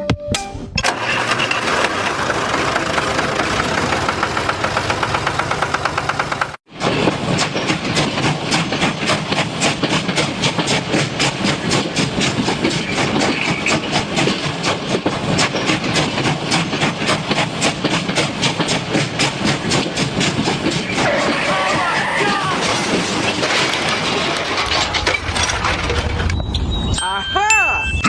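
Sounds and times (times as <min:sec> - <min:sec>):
train wheels clicking over rails: 0:00.8 - 0:26.4
train running rumble: 0:00.8 - 0:26.7.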